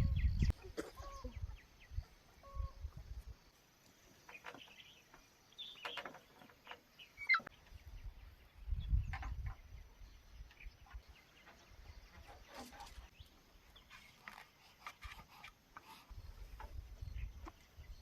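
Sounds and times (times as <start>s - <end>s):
short bird calls: 0.0s - 3.0s, 7.0s - 7.6s.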